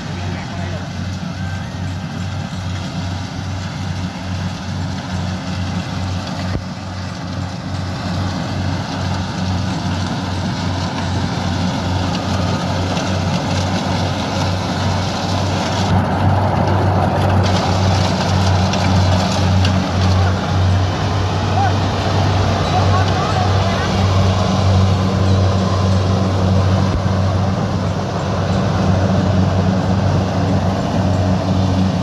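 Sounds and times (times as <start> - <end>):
combine harvester engine running: 0.0 - 32.0.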